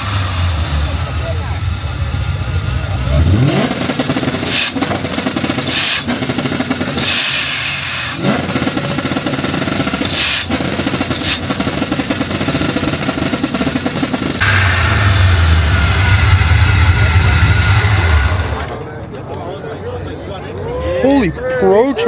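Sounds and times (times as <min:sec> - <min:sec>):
car engine choppy idle: 0:00.0 - 0:18.9.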